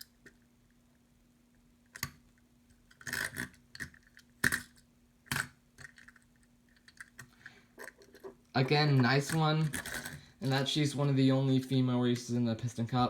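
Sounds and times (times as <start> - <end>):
faint steady hum: 0.0 - 13.0
toy cars clicking and clinking: 2.9 - 8.3, 9.0 - 10.6.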